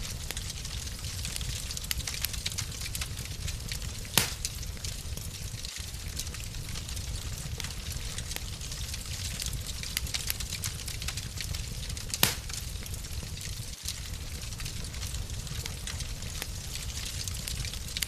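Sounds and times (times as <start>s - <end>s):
low rumble of flames: 0.0s - 18.0s
wood fire crackling: 0.0s - 18.0s
loud fire pop: 4.1s - 4.6s, 12.1s - 12.6s.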